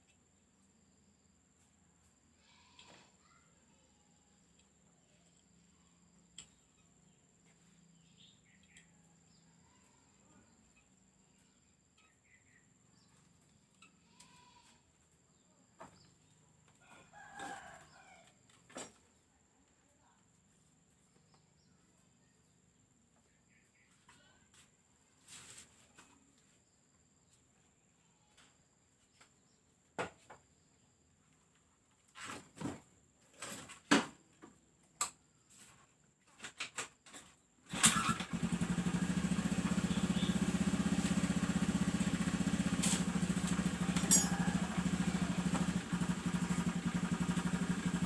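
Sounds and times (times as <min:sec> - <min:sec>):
faint rooster crowing: 0:16.6 - 0:18.5, 0:41.0 - 0:47.8.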